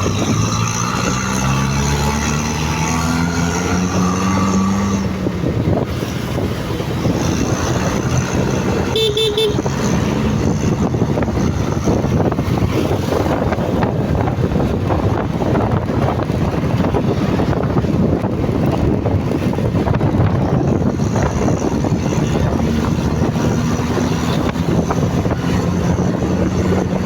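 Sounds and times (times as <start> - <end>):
motorcycle engine running: 3.8 - 27.0
vehicle horn beeps: 8.9 - 9.7.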